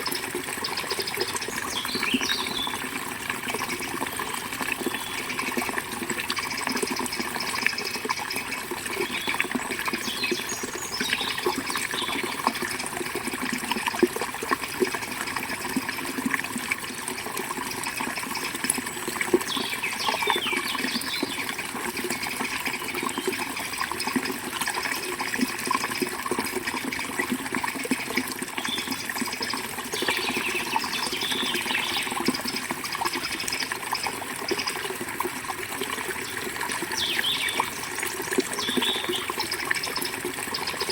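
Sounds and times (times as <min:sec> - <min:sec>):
river water flowing: 0:00.0 - 0:40.9
birds chirping: 0:00.6 - 0:02.8, 0:30.0 - 0:33.4, 0:36.4 - 0:37.9, 0:38.6 - 0:40.9.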